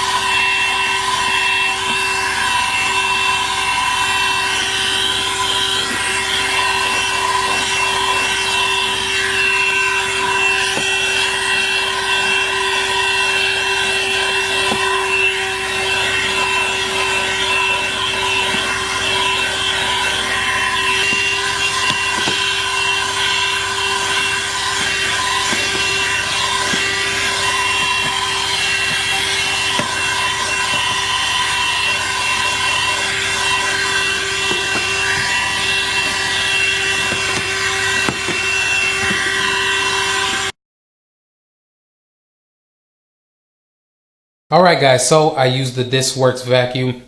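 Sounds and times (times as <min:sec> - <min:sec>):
car vacuum motor whining: 0:00.0 - 0:40.5.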